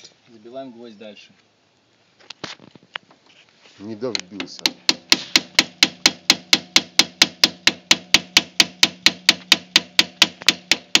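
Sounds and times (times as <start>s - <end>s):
hammer driving a nail: 4.1s - 11.0s.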